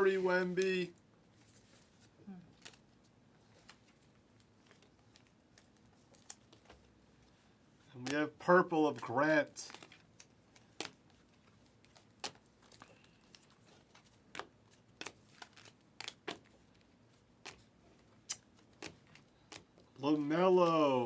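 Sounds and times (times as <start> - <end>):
trading cards clicking and snapping: 11.8 - 19.9.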